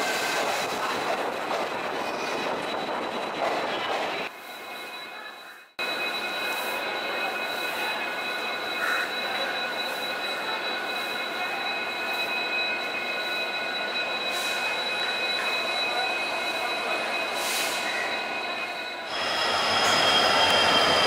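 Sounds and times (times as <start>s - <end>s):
train running noise: 0.0s - 21.0s
high-pitched whines: 5.8s - 21.0s.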